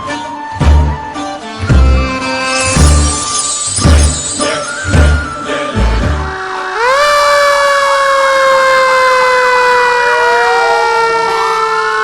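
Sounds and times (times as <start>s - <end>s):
emergency siren rising and falling: 1.9s - 12.0s
fast warbling siren: 6.3s - 12.0s.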